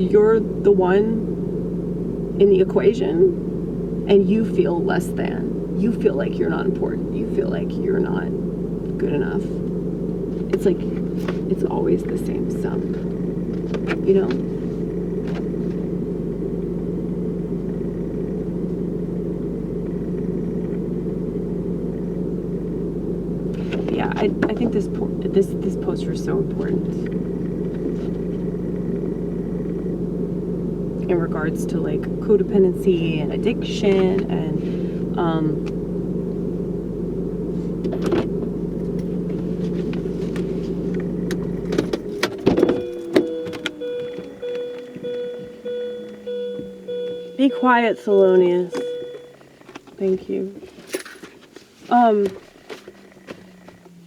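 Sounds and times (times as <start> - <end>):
car engine rumbling: 0.0 - 54.0
constant hum: 0.0 - 54.0
clicks: 37.8 - 47.5.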